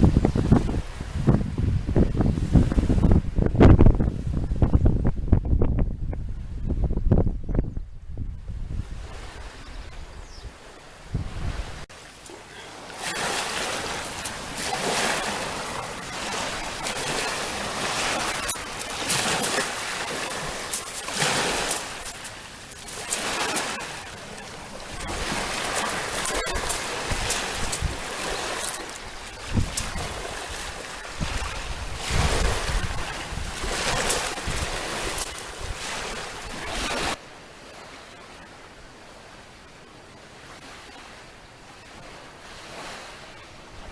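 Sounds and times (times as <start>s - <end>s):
sea waves breaking: 0.0s - 5.3s, 8.4s - 43.9s
wind gusting on microphone: 0.0s - 12.0s, 12.8s - 37.2s.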